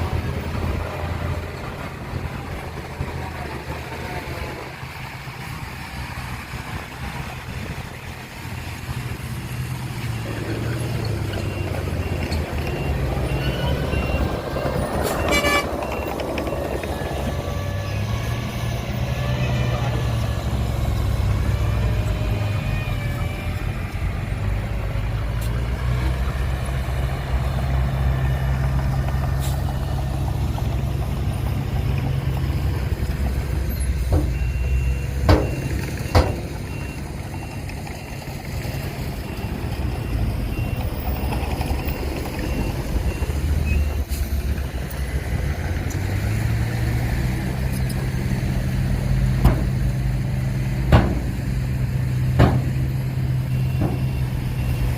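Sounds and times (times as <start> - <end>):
diesel machinery engine drone: 0.0 - 54.9
reversing alarm beeping: 11.2 - 18.0, 33.7 - 44.1, 52.4 - 54.9
sharp knocks: 50.8 - 51.6, 52.2 - 52.9.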